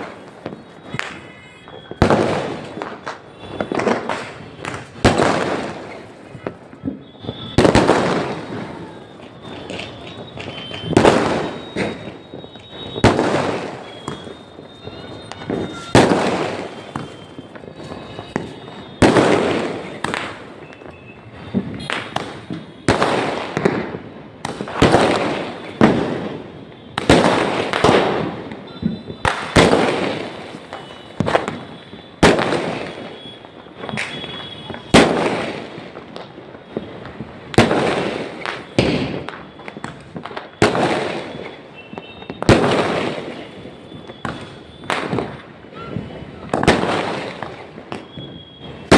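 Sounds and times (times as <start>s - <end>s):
fireworks banging: 0.0s - 48.9s.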